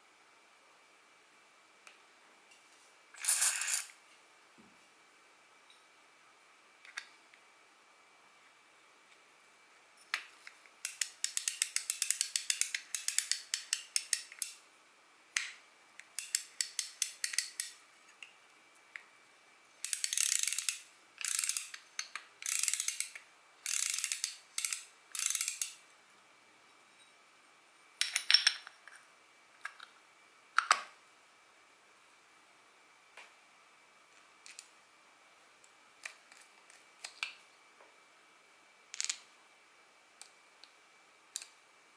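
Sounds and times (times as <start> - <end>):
fishing reel clicking: 10.9 - 14.5, 19.8 - 21.7, 22.4 - 23.1, 23.7 - 25.8.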